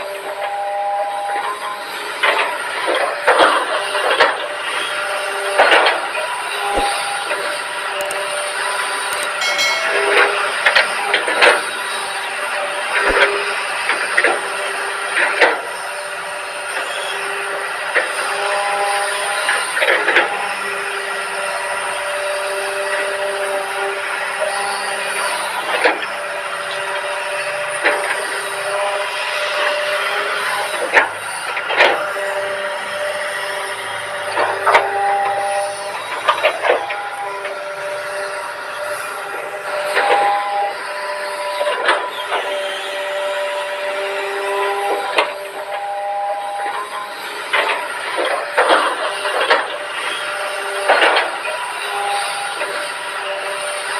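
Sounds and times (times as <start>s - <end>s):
excavator engine droning: 0.0s - 53.9s
metallic clanks and squeals: 3.4s - 15.9s, 27.6s - 53.9s
sharp metallic knocks: 9.4s - 11.6s.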